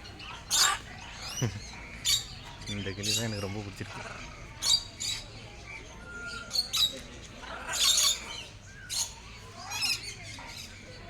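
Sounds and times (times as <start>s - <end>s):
parrots squawking: 0.2s - 2.3s, 7.4s - 8.4s.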